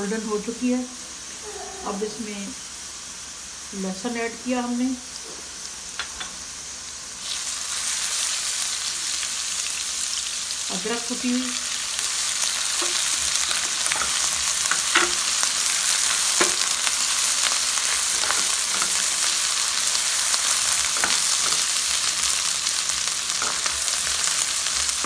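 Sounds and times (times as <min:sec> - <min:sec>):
onions sizzling in hot oil: 0:00.0 - 0:25.0
spatula scraping and tapping a pan: 0:12.7 - 0:15.4, 0:16.2 - 0:16.8, 0:18.0 - 0:19.4, 0:20.5 - 0:22.3.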